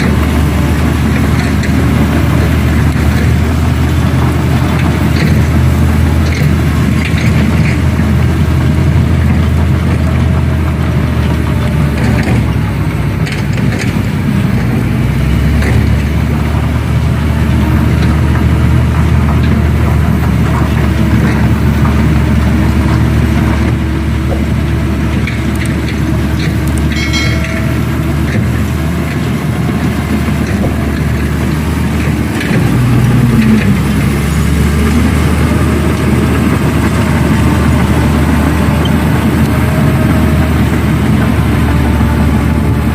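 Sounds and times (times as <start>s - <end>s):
diesel machinery engine hum: 0.0s - 42.9s
high-pitched squeal: 26.2s - 29.9s.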